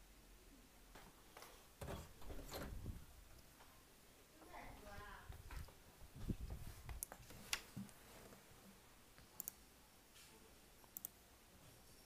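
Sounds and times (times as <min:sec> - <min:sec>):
computer mouse clicks: 0:06.9 - 0:07.7, 0:09.2 - 0:09.6, 0:10.8 - 0:11.2.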